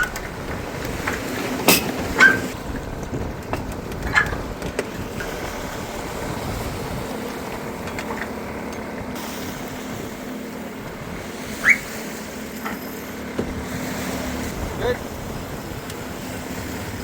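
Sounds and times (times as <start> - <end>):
water rushing along hull: 0.0 - 17.0
wind: 0.0 - 17.0
short rising squeak: 2.2 - 2.6, 11.6 - 12.0.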